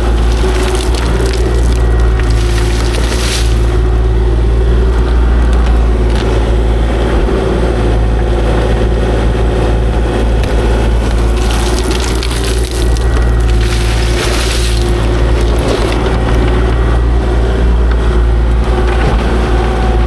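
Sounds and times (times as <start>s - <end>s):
scraping and clattering: 0.0s - 3.9s, 10.8s - 16.6s
excavator engine and hydraulics: 0.0s - 20.0s.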